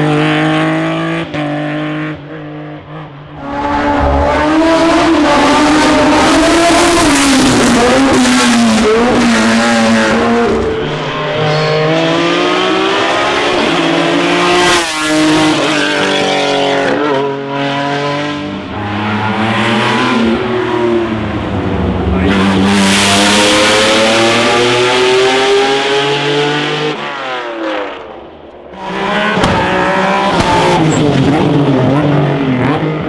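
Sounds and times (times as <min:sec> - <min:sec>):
racing car engine accelerating: 0:03.4 - 0:28.0.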